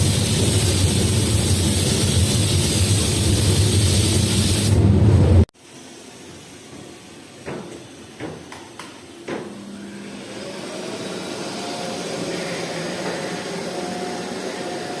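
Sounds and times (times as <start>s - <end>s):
motor humming: 9.5s - 15.0s.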